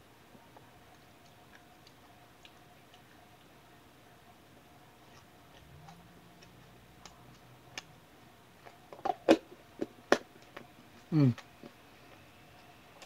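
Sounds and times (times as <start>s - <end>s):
mouth smacks and tongue clicks chewing: 0.6s - 3.5s.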